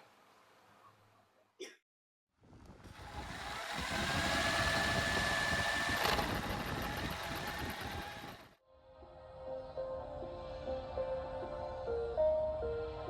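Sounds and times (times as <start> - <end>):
workshop machine whining: 2.9 - 8.6.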